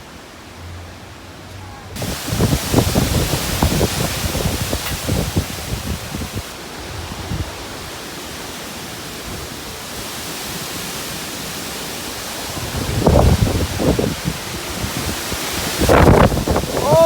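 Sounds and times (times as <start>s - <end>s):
wind and rain rushing: 0.0s - 17.0s
wind buffeting microphone: 2.0s - 8.0s, 12.4s - 17.0s.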